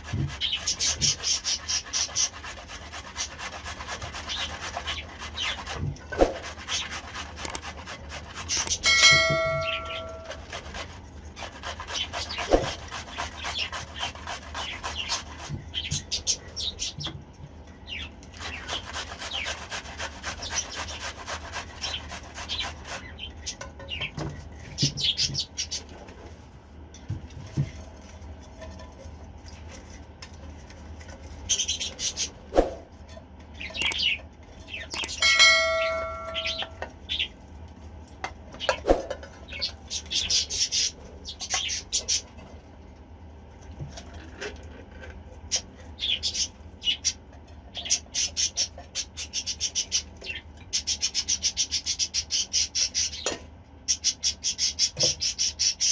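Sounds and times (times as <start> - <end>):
short ringing tone: 8.8 - 10.3, 35.2 - 36.8
budgies chirping: 31.4 - 32.4, 33.6 - 37.4, 39.5 - 42.3, 45.5 - 53.3.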